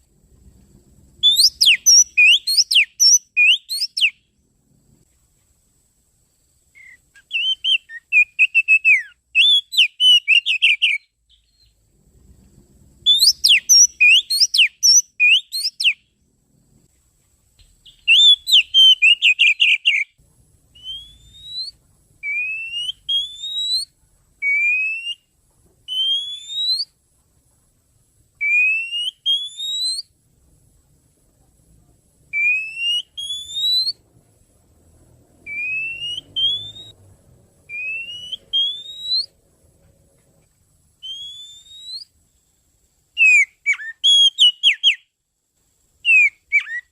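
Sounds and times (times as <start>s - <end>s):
rising bird whistles: 1.2s - 4.2s, 6.7s - 11.8s, 13.0s - 16.1s, 17.8s - 25.3s, 25.9s - 27.0s, 28.4s - 30.1s, 32.3s - 34.0s, 35.4s - 37.0s, 37.7s - 39.4s, 41.0s - 42.2s, 43.2s - 45.1s, 46.0s - 46.9s
bird whistling song: 1.2s - 4.3s, 6.7s - 11.8s, 13.0s - 16.1s, 17.6s - 25.3s, 25.9s - 27.0s, 28.4s - 30.2s, 32.3s - 34.0s, 35.4s - 37.0s, 37.7s - 39.4s, 41.0s - 42.2s, 43.2s - 45.2s, 46.0s - 46.9s.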